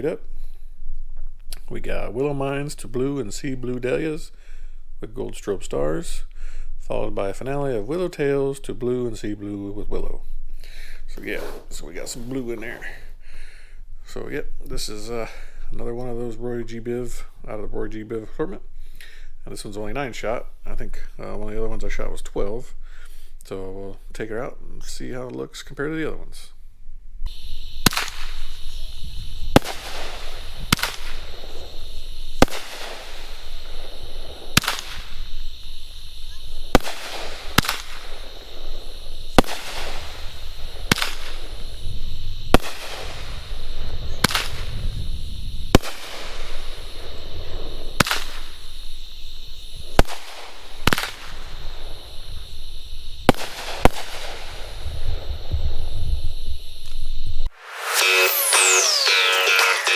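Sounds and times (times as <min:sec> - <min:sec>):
firework stars sizzling: 0:07.8 - 0:13.3, 0:27.3 - 0:59.9
firework launch thumps: 0:27.3 - 0:57.5
firework aerial bangs: 0:27.3 - 0:59.1.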